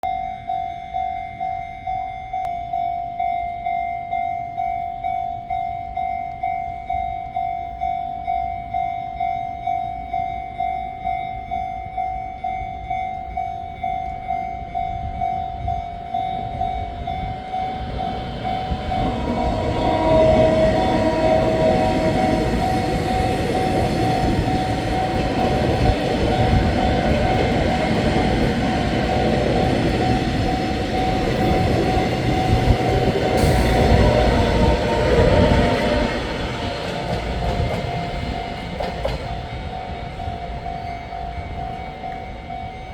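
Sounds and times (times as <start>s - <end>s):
train wheels on rails: 14.0s - 42.9s
train horn: 17.1s - 38.6s.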